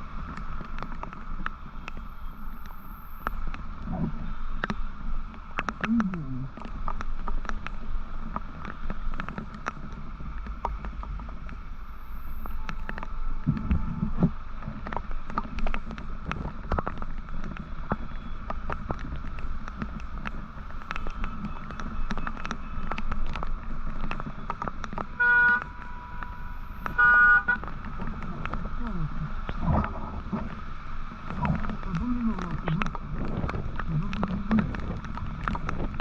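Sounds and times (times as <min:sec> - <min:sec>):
motorcycle engine and road rumble: 0:00.0 - 0:36.0
vehicle horn honking: 0:25.2 - 0:26.3, 0:26.9 - 0:27.6.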